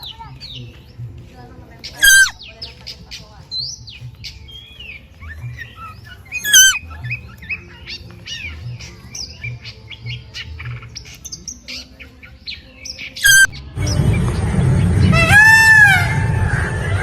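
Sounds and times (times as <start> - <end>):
birds chirping: 0.0 - 17.0
bird squawking calls: 1.9 - 2.5, 5.3 - 8.6, 13.2 - 13.6, 15.1 - 16.5.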